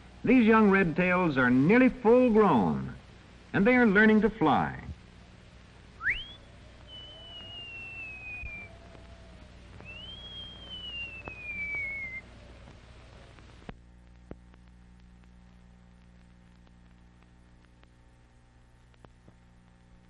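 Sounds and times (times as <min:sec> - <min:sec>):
steady hum: 0:00.0 - 0:20.0
whistle-like pure tones: 0:06.0 - 0:12.7.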